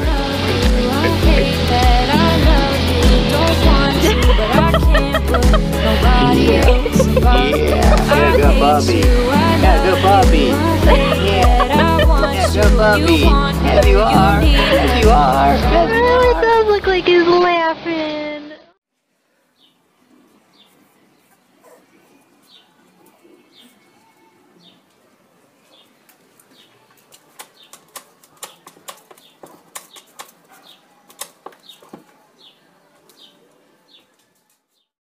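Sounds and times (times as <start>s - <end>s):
claws scrabbling on paving: 26.1s - 32.2s.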